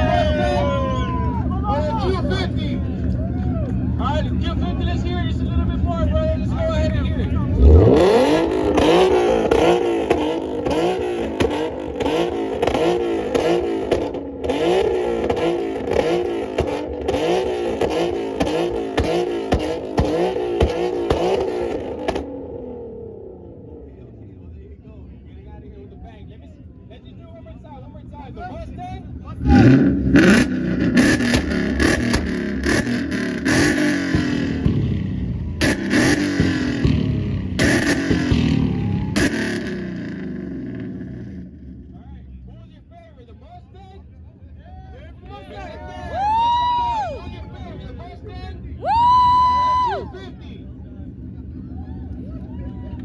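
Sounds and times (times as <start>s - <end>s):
car engine revving: 0.0s - 24.5s, 27.4s - 42.9s.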